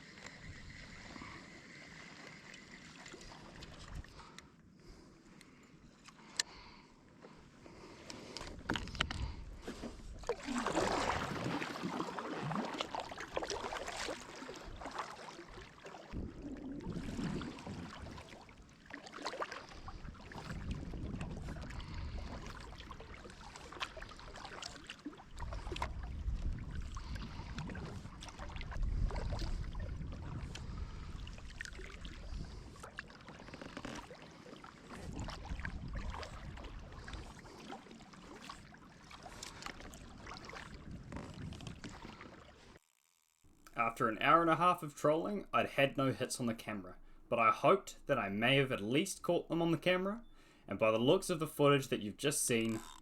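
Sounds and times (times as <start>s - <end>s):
water rushing and gurgling: 9.7s - 42.3s.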